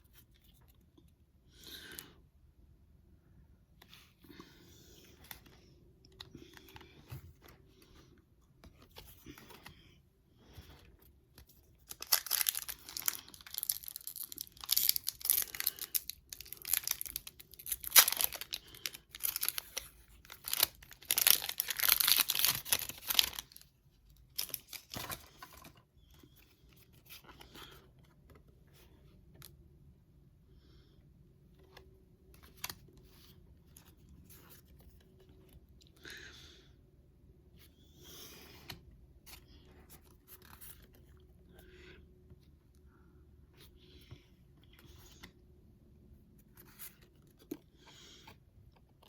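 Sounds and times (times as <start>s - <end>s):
soft handling sounds: 3.4s - 29.8s
foil wrapper crinkling and tearing: 11.8s - 23.6s, 24.3s - 25.1s.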